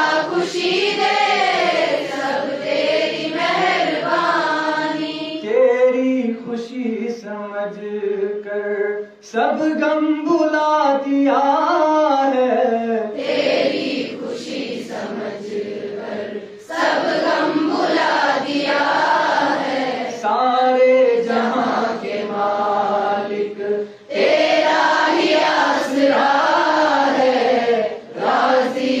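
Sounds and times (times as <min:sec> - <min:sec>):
chorus singing a hymn: 0:00.0 - 0:05.7, 0:13.1 - 0:20.5, 0:21.1 - 0:29.0.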